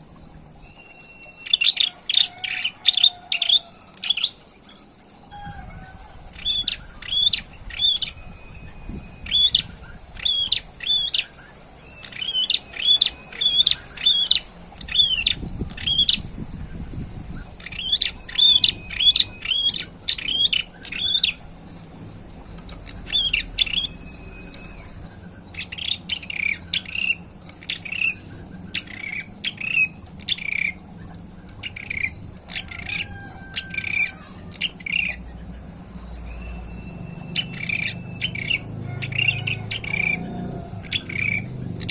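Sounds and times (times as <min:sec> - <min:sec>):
bird singing sharp high chirps: 0:06.4 - 0:21.5, 0:22.6 - 0:40.2.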